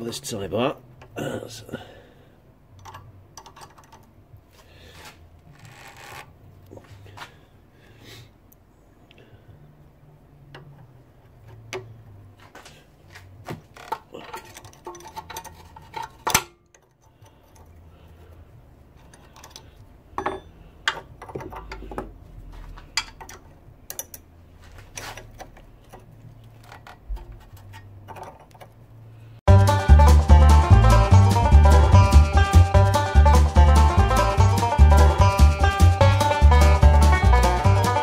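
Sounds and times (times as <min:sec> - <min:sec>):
spanners clinking on bolts: 0:13.9 - 0:17.8, 0:19.0 - 0:22.1, 0:22.9 - 0:24.3.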